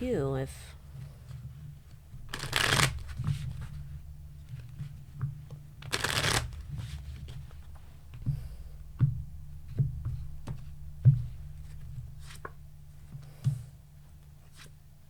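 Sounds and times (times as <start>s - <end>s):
steady low hum: 0.0s - 15.0s
cards shuffled and laid down: 2.2s - 3.8s, 5.8s - 7.6s.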